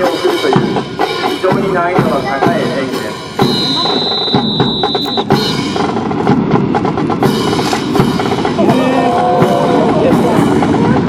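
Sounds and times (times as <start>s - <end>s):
drums playing rapid beats: 0.0s - 11.0s
high steady tone: 3.4s - 5.4s.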